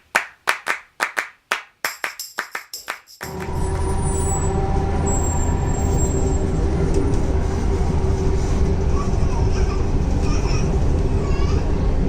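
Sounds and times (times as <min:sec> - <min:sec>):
constant hum: 0:03.3 - 0:12.0
train cabin rumble: 0:03.3 - 0:12.0.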